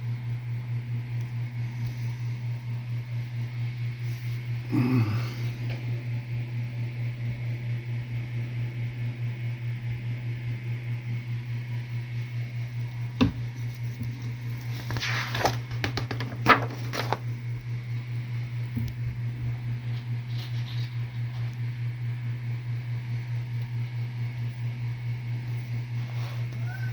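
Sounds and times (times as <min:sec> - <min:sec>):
pulsing low hum: 0:00.0 - 0:15.0, 0:17.2 - 0:26.9
paper pages rustling: 0:14.2 - 0:17.3, 0:20.0 - 0:21.4.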